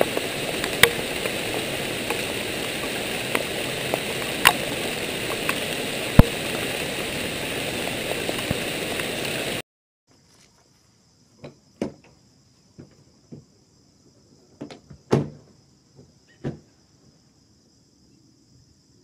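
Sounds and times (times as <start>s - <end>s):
heavy rain falling: 0.0s - 9.6s
sharp raindrops landing close: 0.0s - 9.6s.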